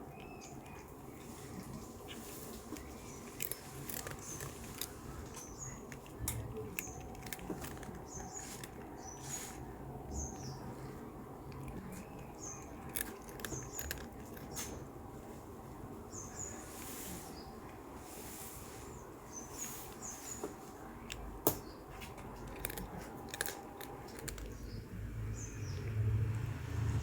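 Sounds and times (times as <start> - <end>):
cat crunching hard snack: 0.1 - 9.8, 10.6 - 15.1, 20.9 - 24.8.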